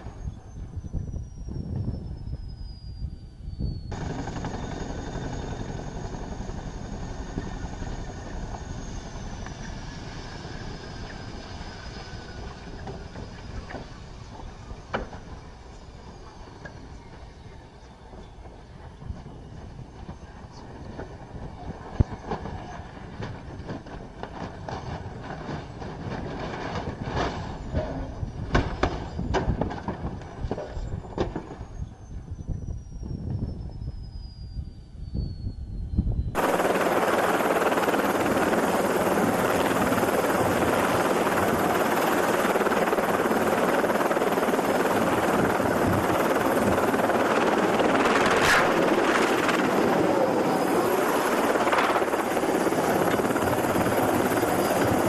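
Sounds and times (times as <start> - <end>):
helicopter noise: 0.0 - 35.6, 36.2 - 55.0.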